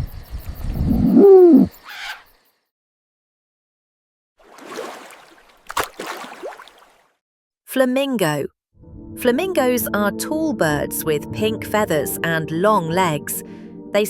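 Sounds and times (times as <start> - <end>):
owl hooting: 0.8 - 2.3.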